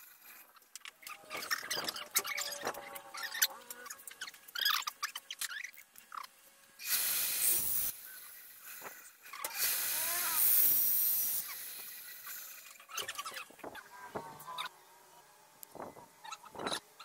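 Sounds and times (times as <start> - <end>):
bandsaw cutting wood: 6.8 - 13.3.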